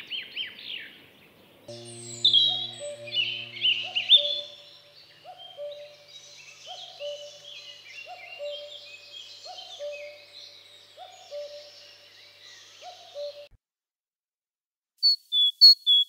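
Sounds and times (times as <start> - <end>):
bird two-note hooting call: 1.7 - 7.5.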